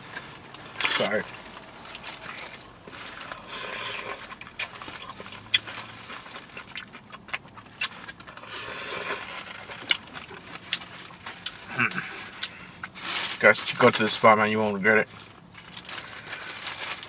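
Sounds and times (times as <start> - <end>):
chewing with wet smacks: 0.0 - 13.0.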